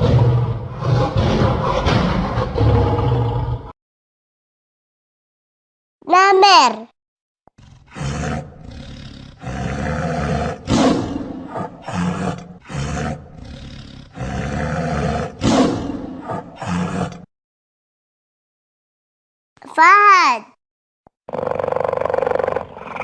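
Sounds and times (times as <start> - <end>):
tiger roaring and growling: 0.0 - 3.8, 7.6 - 17.3, 21.3 - 23.0.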